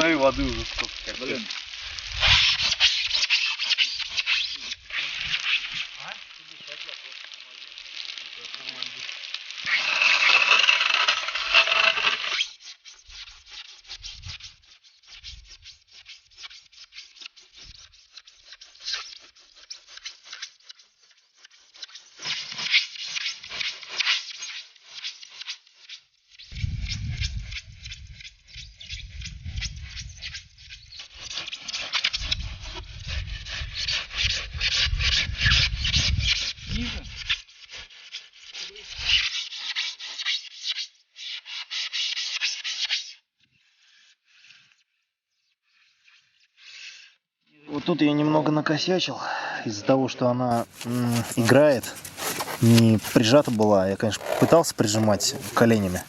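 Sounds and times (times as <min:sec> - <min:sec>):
faint ticks and crackles: 0:00.0 - 0:40.8, 0:50.5 - 0:56.0
saw cutting foam board: 0:09.6 - 0:12.6, 0:50.5 - 0:56.0.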